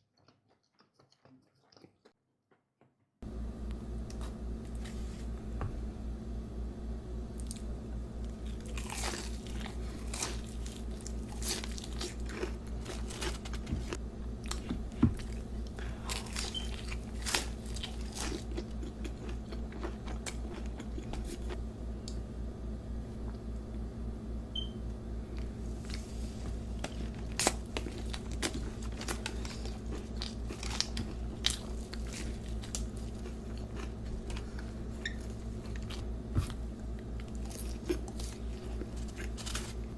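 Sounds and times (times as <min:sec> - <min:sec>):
person chewing crunchy food: 0:00.0 - 0:02.2, 0:08.3 - 0:21.6, 0:25.3 - 0:39.9
low hum: 0:03.2 - 0:39.9.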